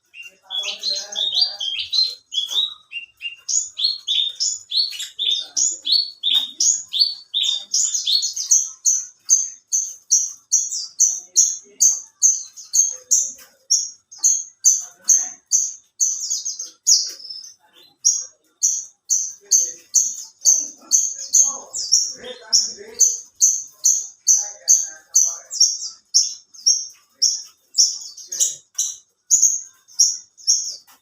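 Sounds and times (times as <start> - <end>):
bush lark singing: 0.0 - 17.4.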